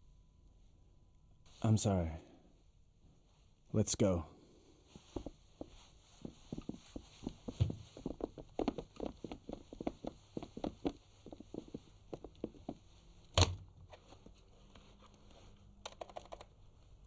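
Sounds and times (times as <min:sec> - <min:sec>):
hurried footsteps on wooden floor: 0:05.0 - 0:12.9.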